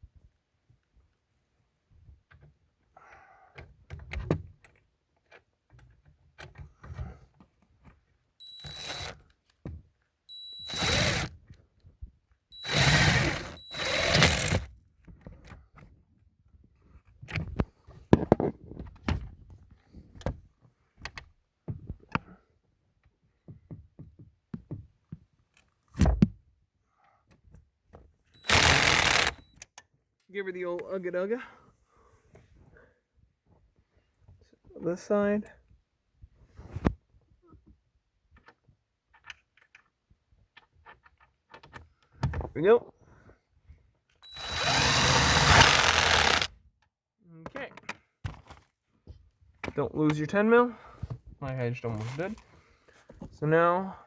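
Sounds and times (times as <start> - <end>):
cordless impact wrench bursts: 8.4 - 9.2, 10.3 - 11.4, 12.6 - 14.7, 28.4 - 29.5, 44.2 - 46.5.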